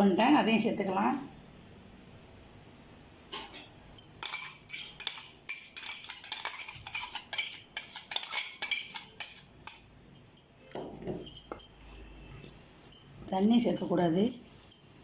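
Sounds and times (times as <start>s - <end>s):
metal spoon clinking and scraping: 3.4s - 15.0s.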